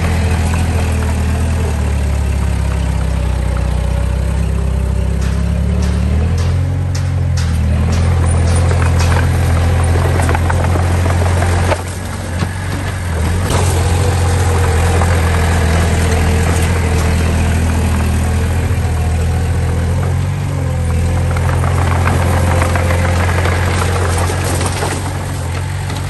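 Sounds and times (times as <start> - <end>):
diesel engine humming: 0.0 - 26.0
sharp knocks: 2.3 - 19.9.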